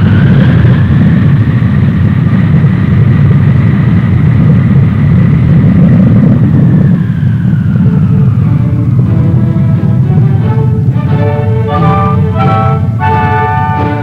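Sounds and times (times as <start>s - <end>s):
jet engines rumbling with high whine: 0.0s - 14.0s.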